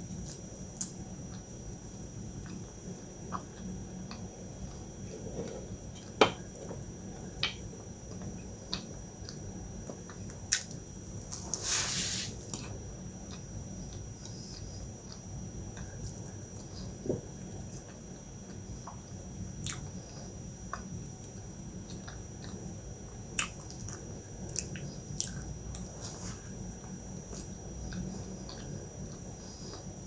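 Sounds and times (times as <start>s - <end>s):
chewing and mouth sounds: 23.4s - 26.2s.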